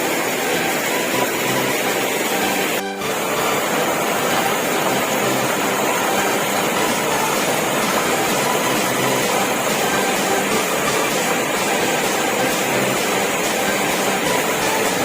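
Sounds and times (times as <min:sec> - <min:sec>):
water pouring down waterfall: 0:00.0 - 0:15.0.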